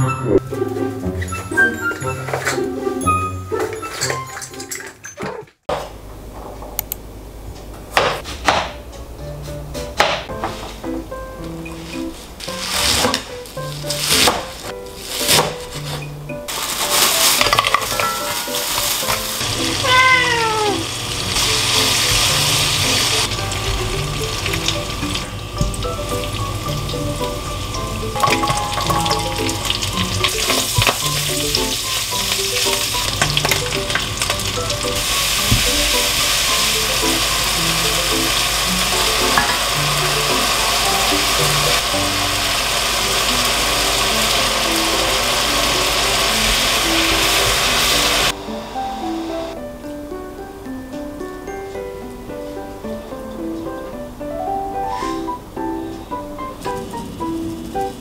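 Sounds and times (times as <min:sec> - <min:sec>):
pork sizzling in a wok: 0:11.4 - 0:49.6, 0:56.4 - 0:58.0.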